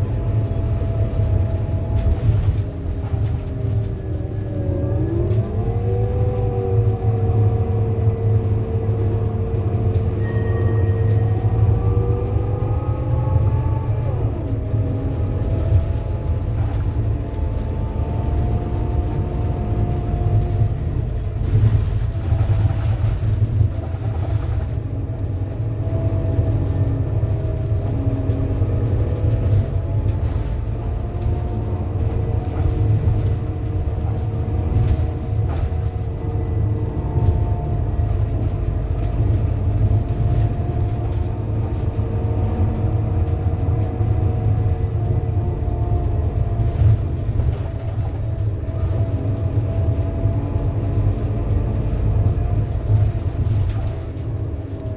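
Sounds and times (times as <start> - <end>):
bus diesel engine rumbling: 0.0 - 54.9
gearbox whining: 0.0 - 54.9.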